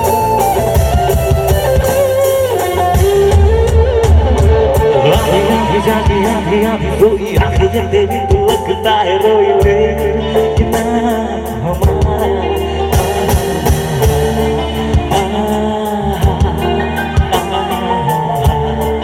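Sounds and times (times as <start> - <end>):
band melody: 0.0 - 19.0
steady drum beat: 0.0 - 19.0.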